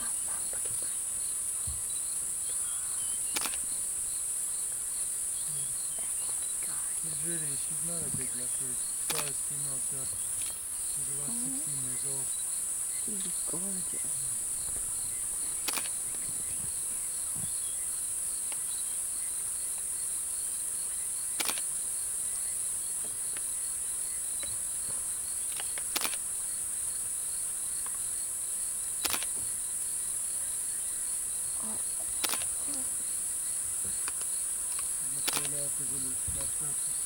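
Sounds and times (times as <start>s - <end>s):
insects trilling: 0.0s - 37.0s
insect pulsing rapidly: 1.8s - 4.2s, 5.4s - 12.3s, 21.3s - 21.8s, 25.4s - 26.4s, 31.6s - 33.1s, 33.9s - 37.0s
sharp clicks: 3.3s - 3.7s, 9.0s - 9.4s, 15.6s - 16.2s, 21.4s - 21.7s, 25.5s - 26.2s, 29.0s - 29.4s, 32.2s - 32.5s, 34.0s - 35.6s.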